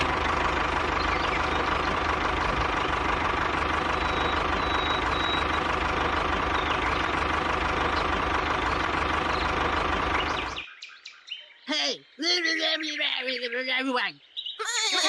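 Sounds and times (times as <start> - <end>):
mini tractor motor humming: 0.0 - 10.6.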